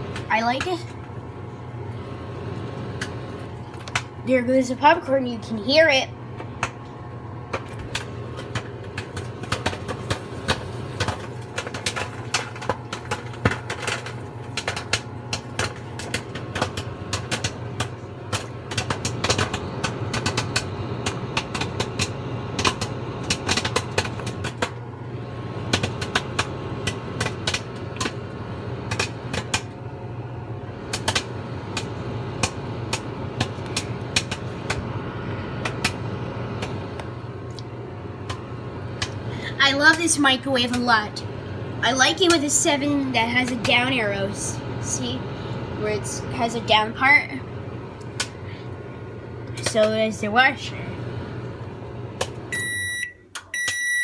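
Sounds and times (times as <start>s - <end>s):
microwave oven humming: 0.0s - 54.0s
popcorn popping: 2.8s - 4.2s, 6.3s - 41.3s, 41.9s - 44.4s, 47.9s - 48.6s, 49.4s - 50.6s, 52.0s - 54.0s.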